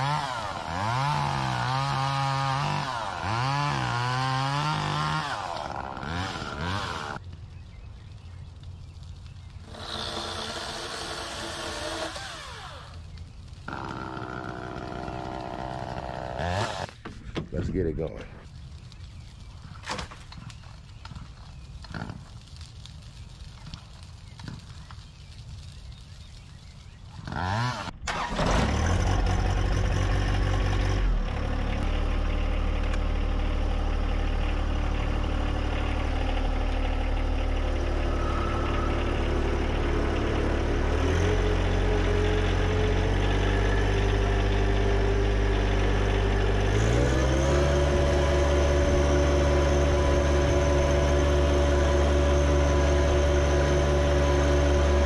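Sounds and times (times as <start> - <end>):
tractor diesel engine starting: 27.9 - 55.0.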